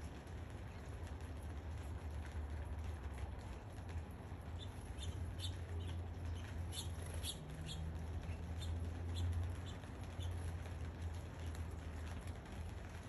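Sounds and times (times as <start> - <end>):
steady low hum: 0.0 - 13.0
small birds chirping: 3.4 - 12.4.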